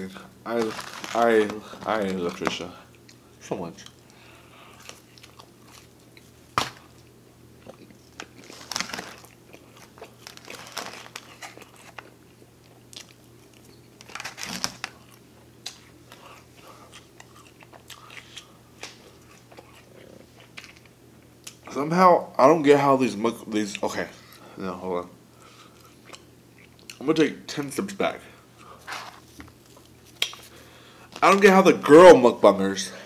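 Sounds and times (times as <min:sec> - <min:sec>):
crunchy chewing of food: 0:03.8 - 0:21.7, 0:25.4 - 0:27.0, 0:28.5 - 0:31.2.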